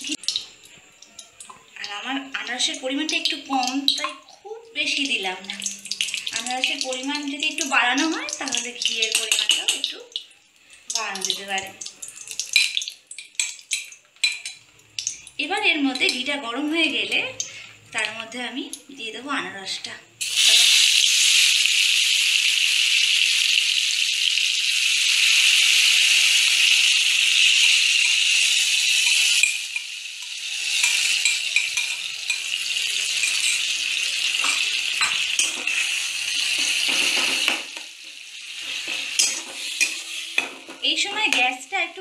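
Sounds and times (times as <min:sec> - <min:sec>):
spoon scraping and knocking pan: 0:09.0 - 0:09.9, 0:12.4 - 0:14.6, 0:28.0 - 0:41.6
fruit sizzling in hot fat: 0:20.1 - 0:42.0.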